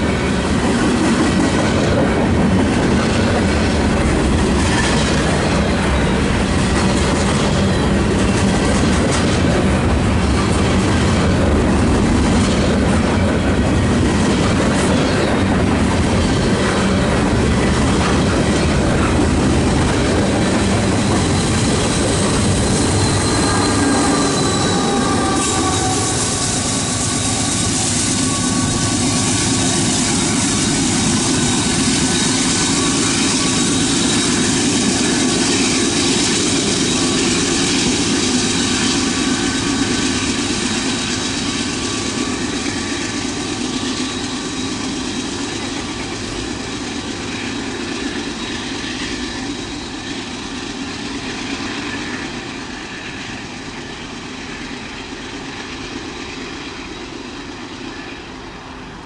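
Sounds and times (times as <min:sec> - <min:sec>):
freight train wheels clattering: 0:00.0 - 0:58.2
wheel squeal: 0:16.3 - 0:53.2.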